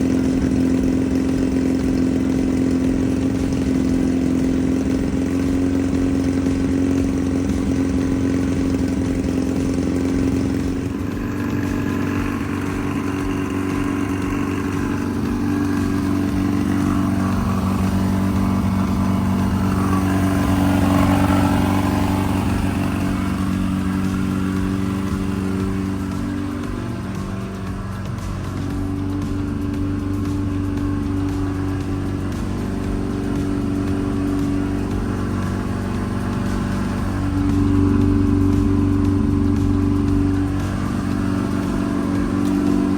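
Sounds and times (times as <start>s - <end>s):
car engine running: 0.0s - 42.9s.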